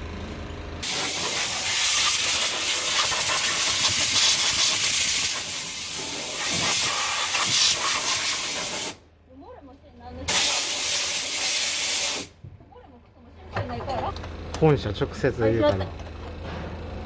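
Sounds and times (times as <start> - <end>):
loud rushing hiss: 0.8 - 9.0, 10.3 - 12.4.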